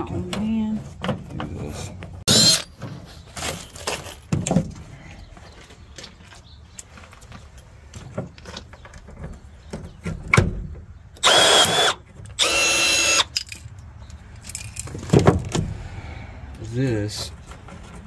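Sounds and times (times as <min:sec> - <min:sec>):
power drill whine: 0:02.3 - 0:02.6, 0:11.2 - 0:13.3.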